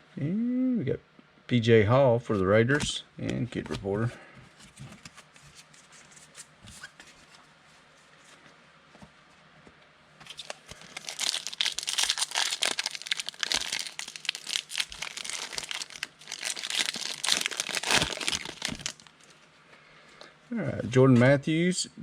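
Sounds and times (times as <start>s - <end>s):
foil wrapper tearing and crinkling: 10.2s - 19.2s.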